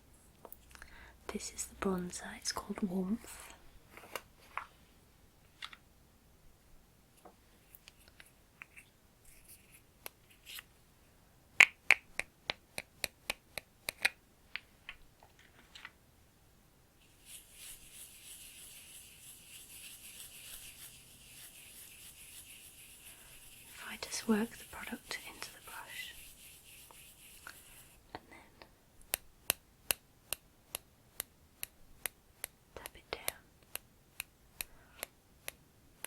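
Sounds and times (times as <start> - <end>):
makeup brush swishing in powder: 17.0 - 28.0.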